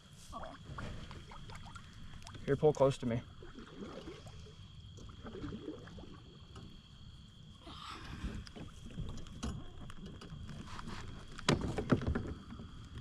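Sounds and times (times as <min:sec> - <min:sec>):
kayak paddling: 0:00.0 - 0:13.0
water sloshing: 0:00.0 - 0:13.0
water splashing: 0:00.3 - 0:06.8
knocks against hull: 0:11.4 - 0:12.8.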